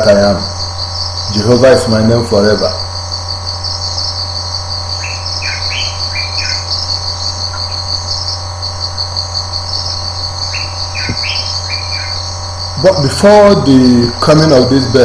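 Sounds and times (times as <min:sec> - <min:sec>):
crickets trilling: 0:00.0 - 0:15.0
low steady hum: 0:00.0 - 0:15.0.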